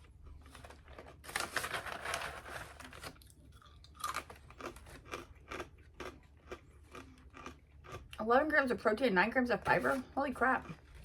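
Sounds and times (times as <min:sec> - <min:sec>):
person crunching dry cereal: 0:00.0 - 0:08.3.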